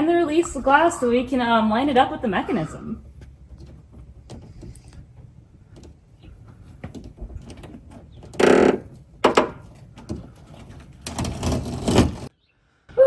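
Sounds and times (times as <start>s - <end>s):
small clicks and knocks: 3.0s - 12.3s.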